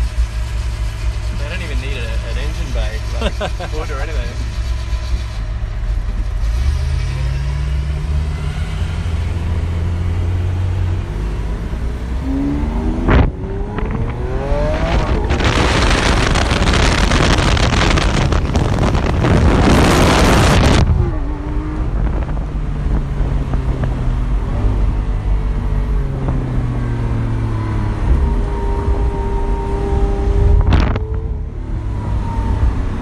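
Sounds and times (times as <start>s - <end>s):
car engine cruising inside cabin: 0.0s - 33.0s
sports car engine at speed: 0.0s - 33.0s
wind rushing: 11.7s - 25.1s.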